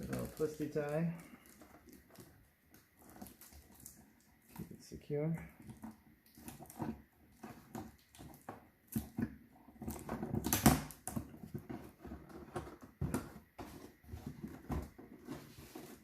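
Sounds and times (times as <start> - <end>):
plastic packaging crinkling: 0.0 - 4.8.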